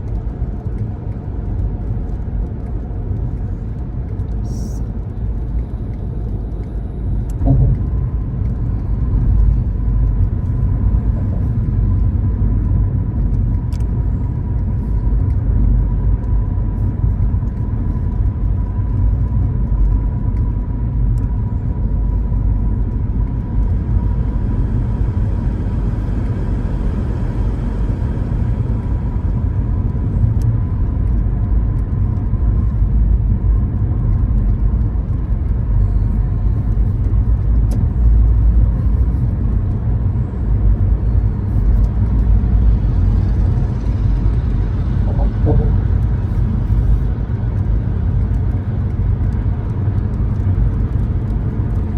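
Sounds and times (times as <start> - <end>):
car engine and road rumble: 0.0 - 51.9
faint steady whine: 35.6 - 48.3.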